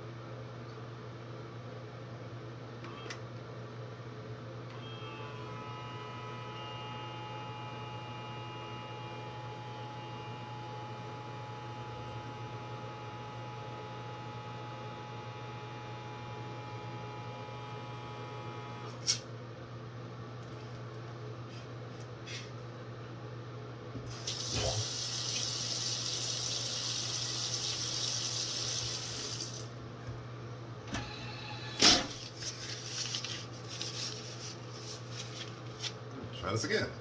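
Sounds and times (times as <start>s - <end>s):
nasal irrigator pump hissing: 24.1s - 29.6s.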